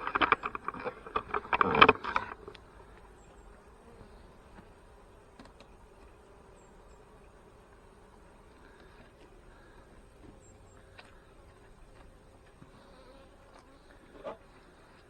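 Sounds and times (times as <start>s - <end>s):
handling knocks and scraping: 0.0s - 2.6s
honey bees buzzing: 0.0s - 15.0s.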